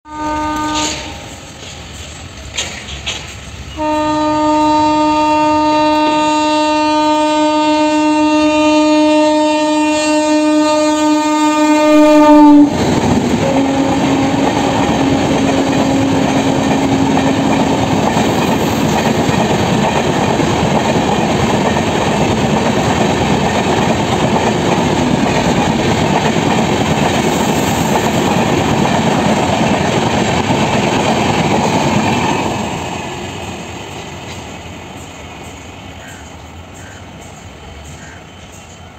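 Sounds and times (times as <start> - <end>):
locomotive horn: 0.1 - 1.5, 3.7 - 12.8, 13.4 - 18.0
rush of train coaches passing: 0.1 - 38.9.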